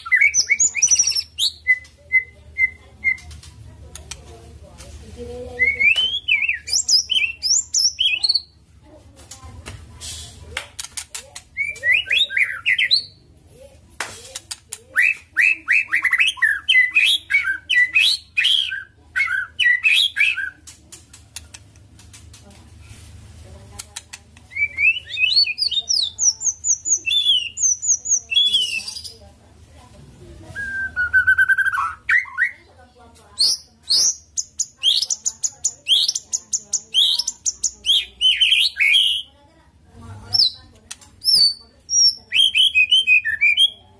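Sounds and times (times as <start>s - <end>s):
bird chattering clicks: 10.6s - 12.9s, 19.2s - 22.4s
bird singing whistled notes: 30.6s - 32.5s.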